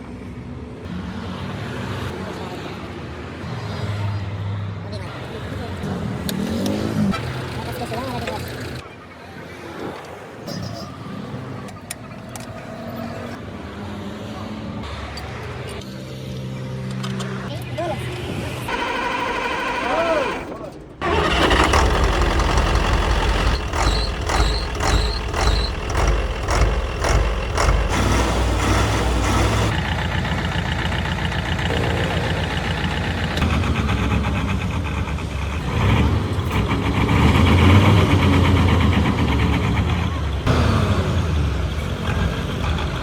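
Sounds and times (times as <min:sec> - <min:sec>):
engine revving: 0:05.8 - 0:08.8, 0:18.2 - 0:43.0
diesel truck engine running: 0:18.2 - 0:43.0.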